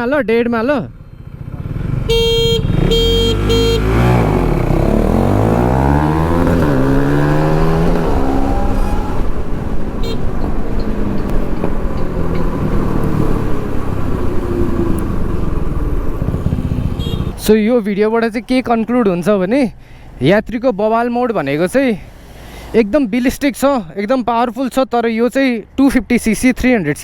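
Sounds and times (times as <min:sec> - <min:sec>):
traffic noise: 0:00.8 - 0:27.0
motorcycle engine accelerating: 0:00.9 - 0:19.5.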